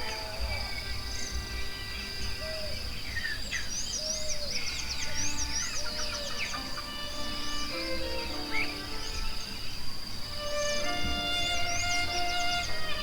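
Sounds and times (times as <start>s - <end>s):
high insect-like buzz: 0.0s - 3.9s, 4.6s - 13.0s
birds chirping and whistling: 0.0s - 13.0s
soft music of held notes: 4.2s - 13.0s.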